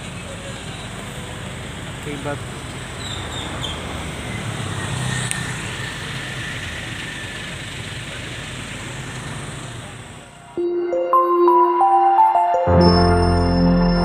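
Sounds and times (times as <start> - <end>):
vehicle engines in traffic: 0.0 - 10.6
soft music with sustained notes: 10.6 - 14.0.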